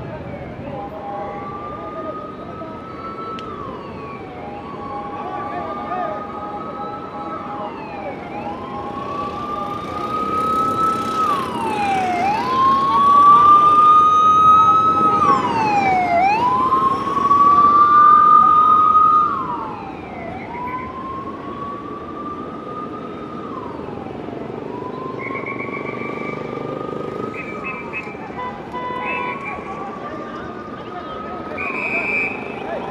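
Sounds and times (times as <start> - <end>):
city traffic hum: 0.0 - 32.9
police sirens wailing: 0.0 - 32.9.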